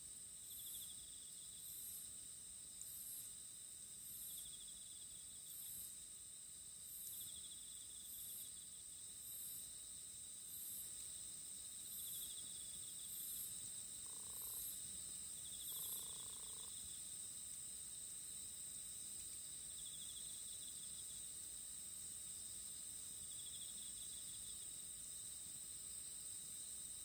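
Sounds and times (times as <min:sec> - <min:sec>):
pulsing insect chirp: 0:11.9 - 0:17.0.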